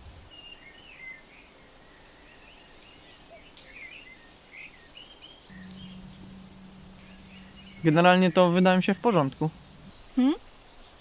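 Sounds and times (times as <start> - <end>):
faint birdsong: 0.0 - 11.0
soft background hiss: 0.1 - 11.0
low steady hum: 5.3 - 11.0.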